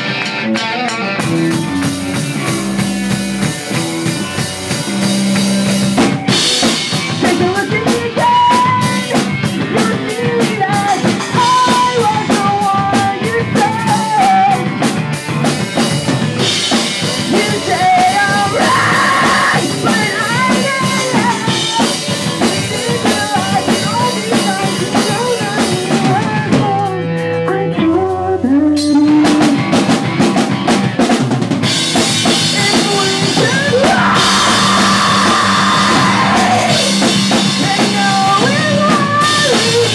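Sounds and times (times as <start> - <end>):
drum kit with crashing cymbals: 0.0 - 27.5, 28.8 - 39.9
distorted guitars and bass: 0.0 - 39.9
sung vocals: 4.1 - 31.0, 31.6 - 39.9.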